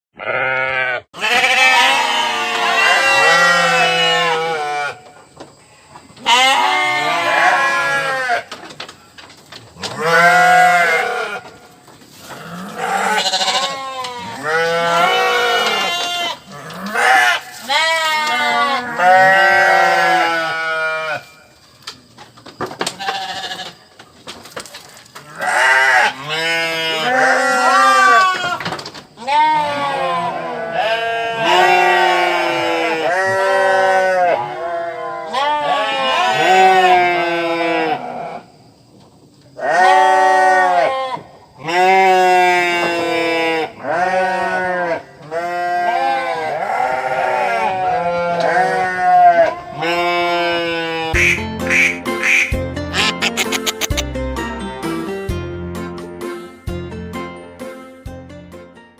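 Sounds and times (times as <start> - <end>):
sheep bleating: 0.2 - 5.0, 6.2 - 8.5, 10.0 - 11.4, 12.4 - 21.3, 23.0 - 23.8, 25.3 - 28.6, 29.2 - 38.4, 39.6 - 54.0.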